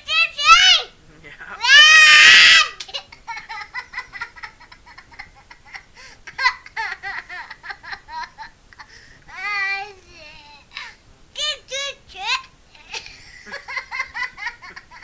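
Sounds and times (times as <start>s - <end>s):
child squealing: 1.6s - 2.8s
child giggling: 2.1s - 10.9s, 12.8s - 15.0s.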